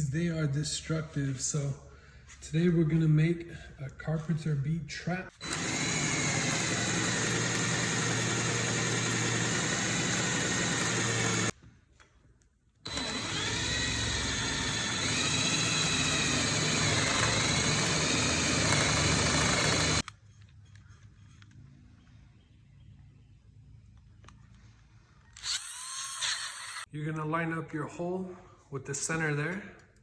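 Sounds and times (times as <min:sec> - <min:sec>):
power drill boring into wood: 0:05.4 - 0:11.6, 0:12.9 - 0:20.1, 0:25.4 - 0:26.9.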